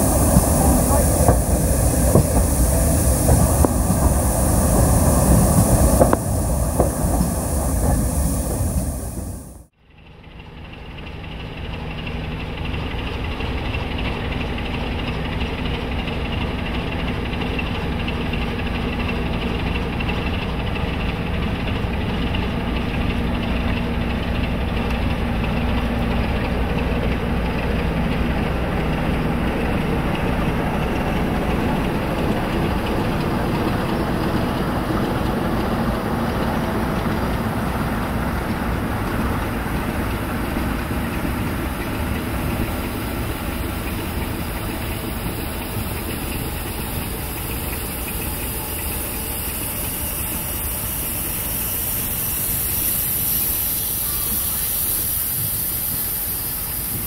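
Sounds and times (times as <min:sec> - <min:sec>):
train rumbling past: 0:00.0 - 0:57.0.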